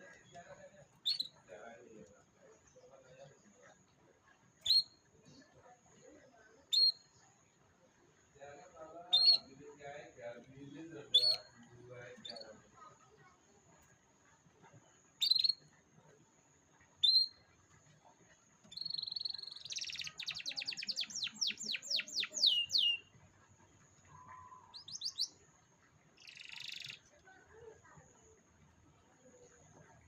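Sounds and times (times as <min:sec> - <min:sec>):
canary singing: 0:01.0 - 0:01.4, 0:04.6 - 0:05.0, 0:09.0 - 0:09.5, 0:10.7 - 0:11.6, 0:12.2 - 0:12.6, 0:15.2 - 0:15.7, 0:17.0 - 0:17.5, 0:18.6 - 0:23.1, 0:24.0 - 0:25.5, 0:26.2 - 0:27.2.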